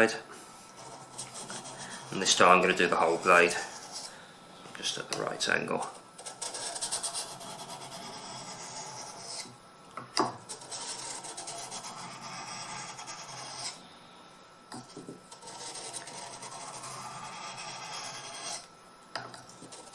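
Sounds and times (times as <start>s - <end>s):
knife scraping on whetstone: 0.8s - 4.1s, 6.2s - 9.5s, 10.4s - 13.8s, 14.8s - 18.7s, 19.5s - 19.9s.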